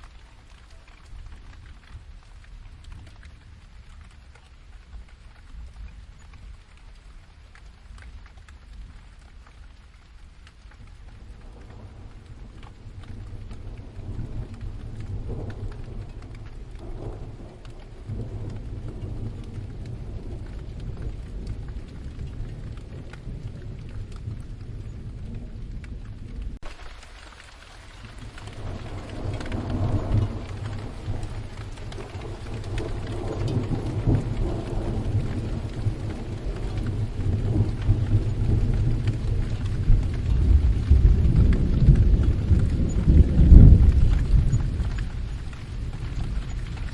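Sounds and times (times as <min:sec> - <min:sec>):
steady rain: 0:00.0 - 0:46.9
distant thunder rolling: 0:11.2 - 0:26.8, 0:27.8 - 0:46.9.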